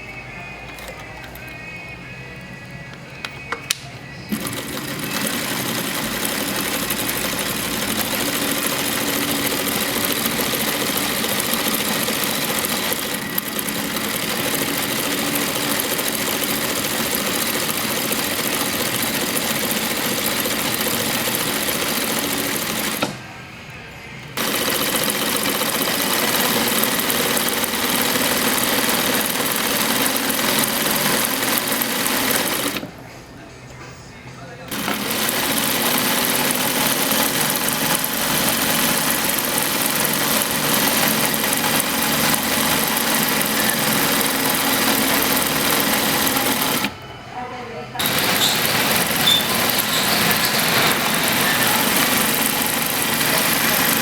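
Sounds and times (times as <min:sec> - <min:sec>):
sewing machine stitching: 0:00.6 - 0:01.6, 0:04.3 - 0:23.2, 0:24.4 - 0:33.0, 0:34.7 - 0:47.0, 0:48.0 - 0:54.0
clicks: 0:02.9 - 0:04.4.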